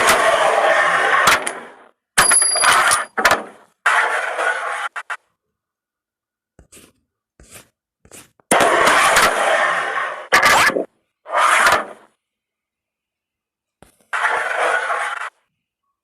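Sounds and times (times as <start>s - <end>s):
carrom pieces scraping on board: 6.6s - 12.1s, 13.8s - 15.4s.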